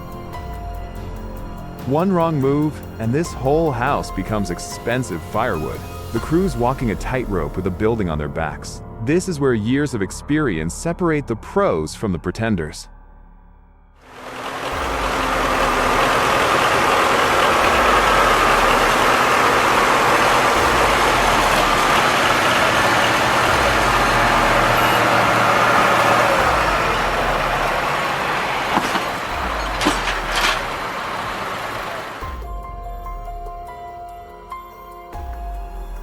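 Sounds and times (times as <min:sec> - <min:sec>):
heavy vehicle engine running: 0:14.1 - 0:33.3.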